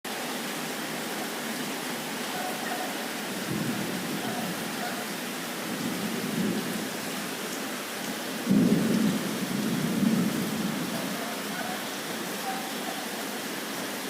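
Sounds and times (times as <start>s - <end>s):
heavy rain pouring: 0.1s - 14.0s
low rumble of thunder: 3.4s - 4.8s, 5.6s - 6.8s, 8.4s - 11.3s.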